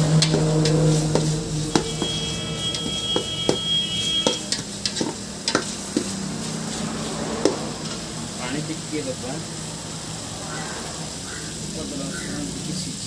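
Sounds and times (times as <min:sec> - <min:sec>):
pan ringing from strike: 0:00.0 - 0:05.2
metal spoon scraping a pan: 0:00.0 - 0:08.1
curry sizzling: 0:00.0 - 0:13.0.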